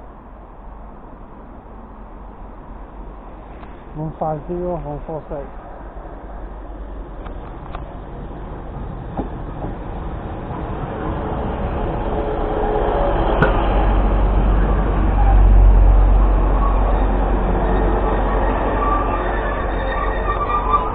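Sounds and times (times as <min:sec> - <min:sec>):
train engine and wheels rumbling: 0:00.0 - 0:20.9
thin whining tones: 0:14.6 - 0:20.9.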